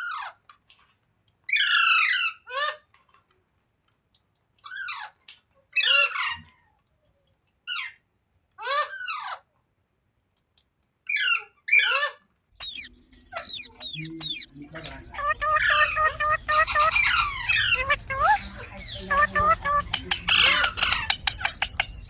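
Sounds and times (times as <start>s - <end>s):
parrot harsh calls: 11.1s - 22.0s.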